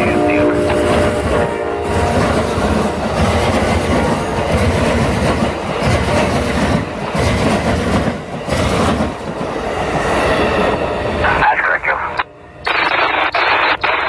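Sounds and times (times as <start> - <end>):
wheels clacking on rail: 0.0 - 10.8
passenger train rolling past: 0.0 - 14.0.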